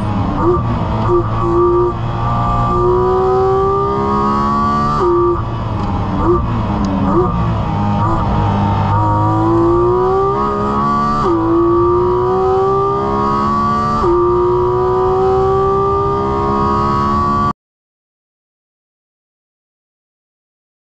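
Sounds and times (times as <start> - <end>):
car engine accelerating: 0.0 - 17.5.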